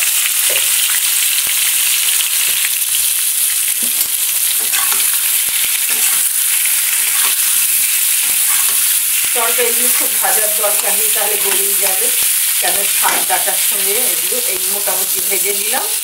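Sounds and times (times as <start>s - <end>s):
vegetables sizzling in oil: 0.0s - 16.0s
spatula scraping and tapping pan: 3.8s - 6.3s, 12.9s - 13.4s.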